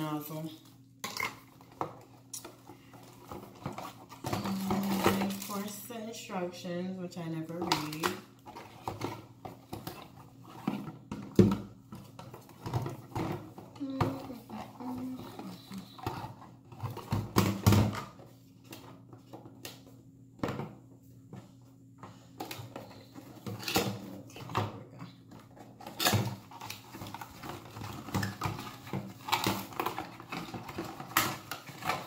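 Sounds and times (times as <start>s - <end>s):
faint low hum: 0.0s - 32.0s
packaging rustling: 3.1s - 5.8s.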